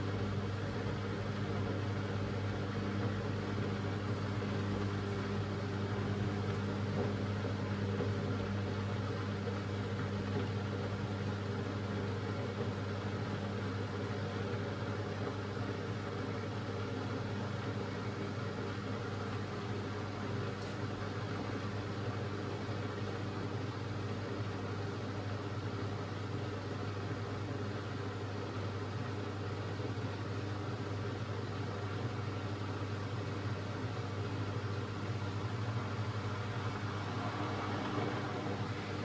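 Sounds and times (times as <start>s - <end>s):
washing machine humming: 0.0s - 39.0s.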